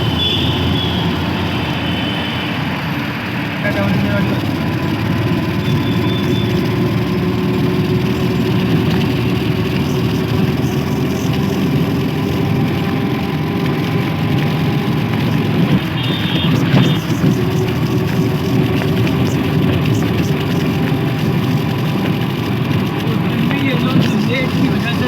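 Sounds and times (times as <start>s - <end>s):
train rumble: 0.0s - 25.0s.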